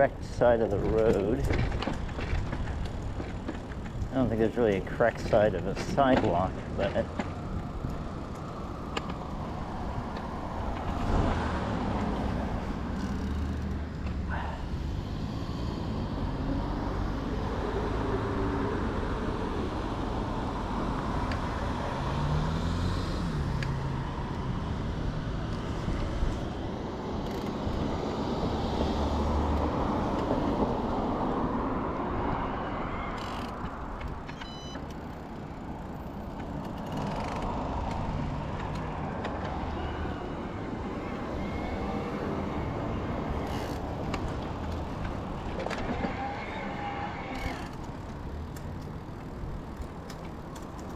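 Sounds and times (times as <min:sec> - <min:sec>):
road traffic passing: 0:00.0 - 0:50.9.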